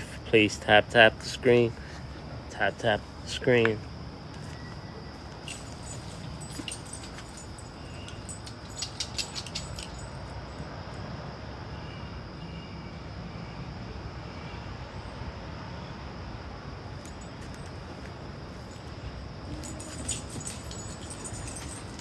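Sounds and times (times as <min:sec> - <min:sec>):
constant high hum: 0:00.0 - 0:22.0
outdoor background noise: 0:00.0 - 0:22.0.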